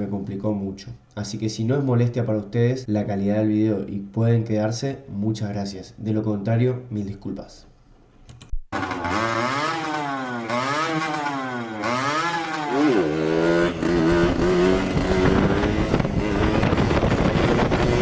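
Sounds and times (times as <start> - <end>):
motorcycle engine revving: 8.7 - 18.0.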